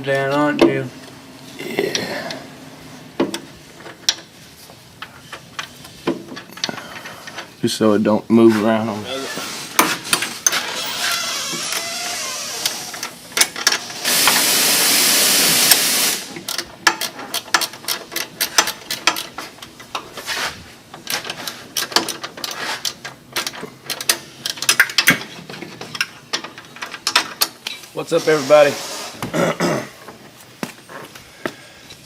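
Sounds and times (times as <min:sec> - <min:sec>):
loud hiss: 0:12.4 - 0:16.4, 0:28.0 - 0:29.3.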